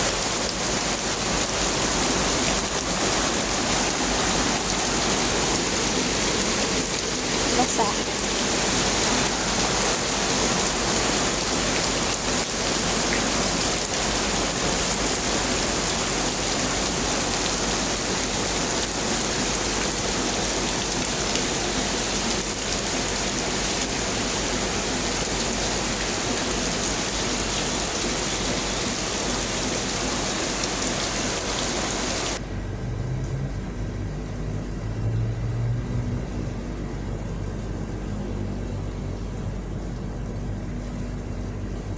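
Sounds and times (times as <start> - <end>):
heavy rain pouring: 0.0 - 32.4.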